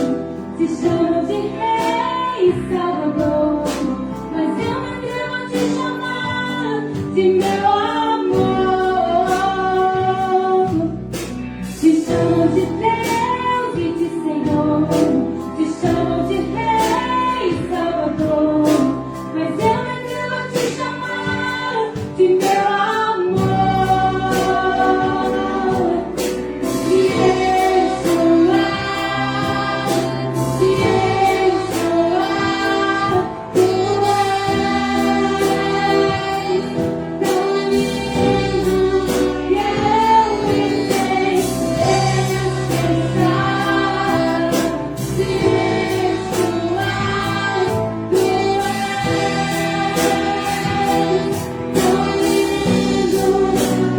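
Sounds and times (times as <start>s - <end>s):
orchestra playing slow worship song: 0.0s - 53.9s
singing: 19.5s - 53.9s.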